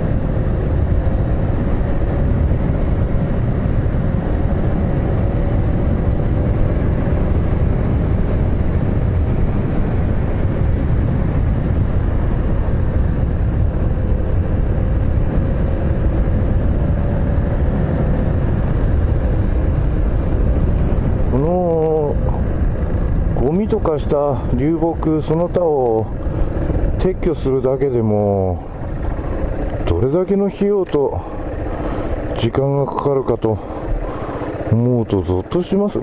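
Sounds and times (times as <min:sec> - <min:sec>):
vehicle engine rumble: 0:00.0 - 0:36.0
faint droning tone: 0:08.4 - 0:36.0.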